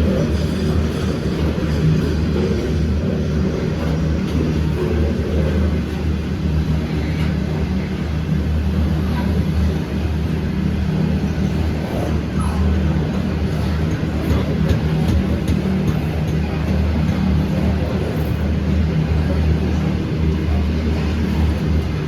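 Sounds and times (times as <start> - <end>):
freight train engine drone: 0.0 - 22.0.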